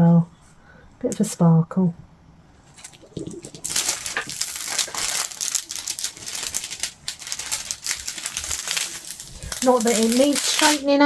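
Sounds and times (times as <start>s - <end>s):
canvas and plastic film crackling: 2.6s - 11.0s.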